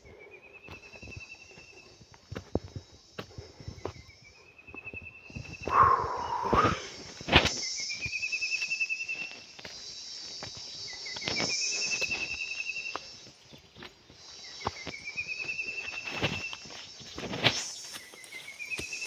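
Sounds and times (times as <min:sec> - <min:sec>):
insects droning: 0:00.0 - 0:19.0
bird rising trill: 0:05.7 - 0:07.0.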